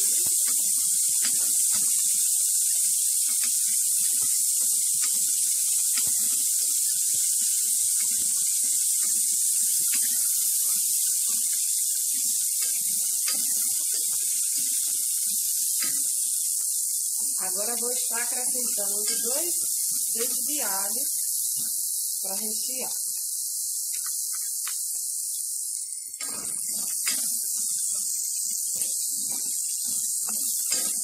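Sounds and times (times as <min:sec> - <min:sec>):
spatula scraping and tapping pan: 0:00.0 - 0:16.7, 0:18.6 - 0:20.6, 0:26.2 - 0:31.0
potatoes sizzling in hot oil: 0:00.0 - 0:31.0.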